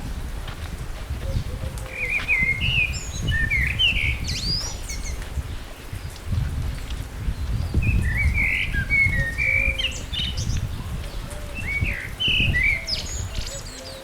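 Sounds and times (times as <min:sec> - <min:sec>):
songbird whistling: 0:07.9 - 0:10.4.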